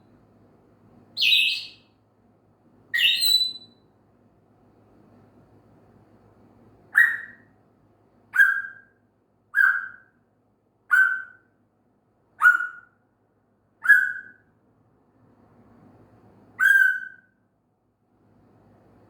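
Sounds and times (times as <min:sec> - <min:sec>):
parrot whistling: 0:01.2 - 0:01.8, 0:03.0 - 0:03.8, 0:07.0 - 0:07.4, 0:08.4 - 0:08.9, 0:09.6 - 0:10.1, 0:10.9 - 0:11.4, 0:12.4 - 0:12.9, 0:13.8 - 0:14.4, 0:16.6 - 0:17.3.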